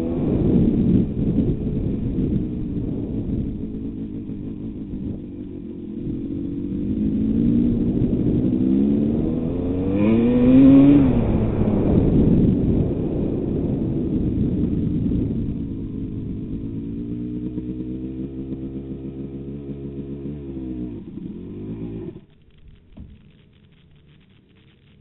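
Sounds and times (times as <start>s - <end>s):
wind noise on microphone: 0.0s - 19.1s
motocross bike engine revving: 0.0s - 24.2s.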